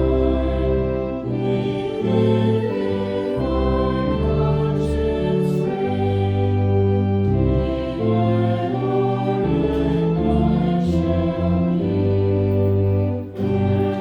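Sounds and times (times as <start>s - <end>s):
church music held chords: 0.0s - 14.0s.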